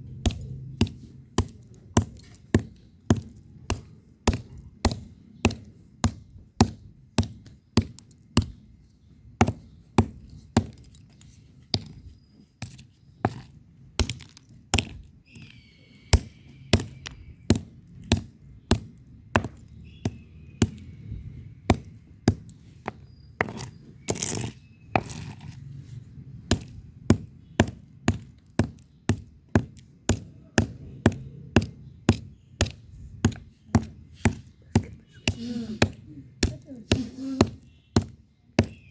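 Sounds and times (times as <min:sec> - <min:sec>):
bricks knocking together: 0:21.7 - 0:25.6.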